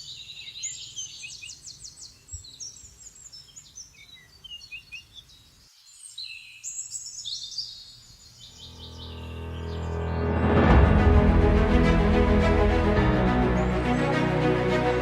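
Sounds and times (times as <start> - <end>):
birds chirping and singing: 0.0 - 10.3, 13.0 - 14.6
music: 8.6 - 15.0.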